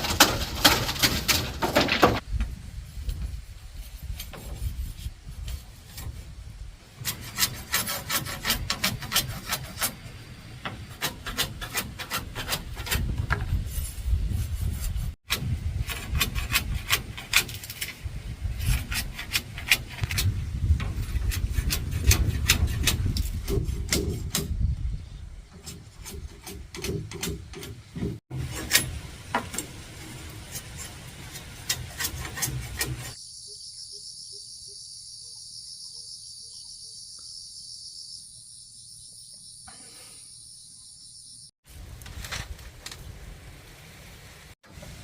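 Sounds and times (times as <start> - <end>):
hand tool working wood: 0.0 - 2.2, 3.8 - 6.3, 6.9 - 24.7, 25.5 - 33.2.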